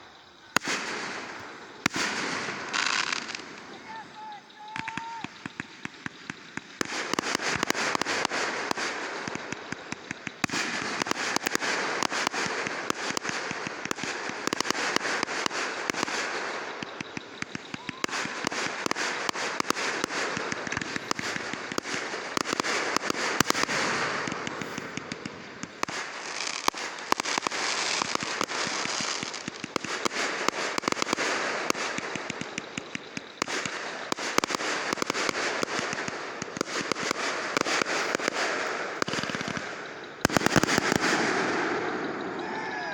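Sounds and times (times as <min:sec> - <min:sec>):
fireworks crackling pops: 0:00.0 - 0:42.9.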